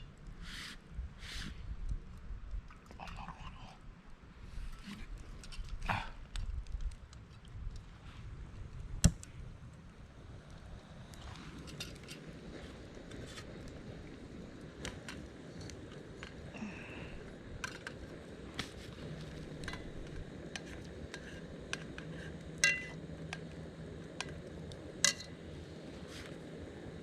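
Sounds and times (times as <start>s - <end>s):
metal cookware clicking and tapping: 22.6s - 23.0s.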